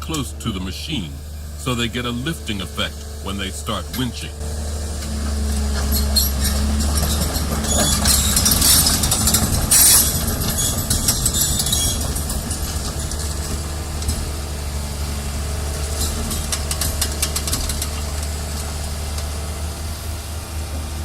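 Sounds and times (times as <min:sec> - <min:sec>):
heavy diesel machinery running: 0:00.0 - 0:21.0
metal clanks and knocks: 0:05.0 - 0:14.6, 0:15.8 - 0:19.4.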